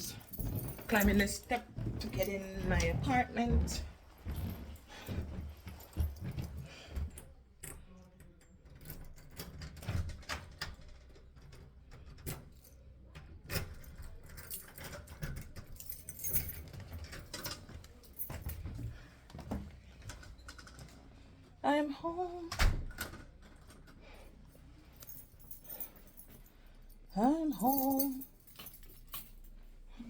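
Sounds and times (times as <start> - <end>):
keys jangling: 0.0 - 3.0, 4.2 - 12.9, 13.5 - 18.9, 23.4 - 30.0.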